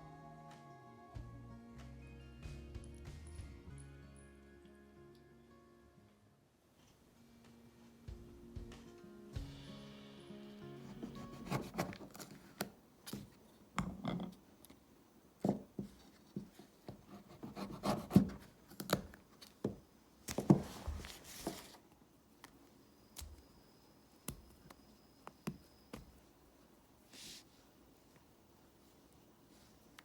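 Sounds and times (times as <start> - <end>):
rubbing and scraping: 10.8 - 12.6, 15.8 - 18.6.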